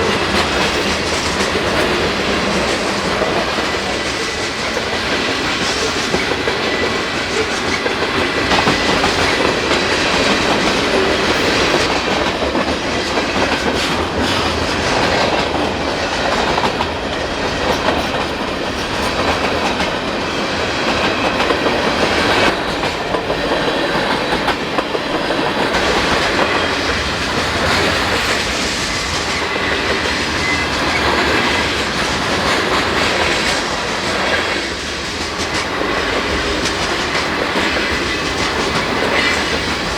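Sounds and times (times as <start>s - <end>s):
train wheels clacking over rails: 0.0s - 39.9s.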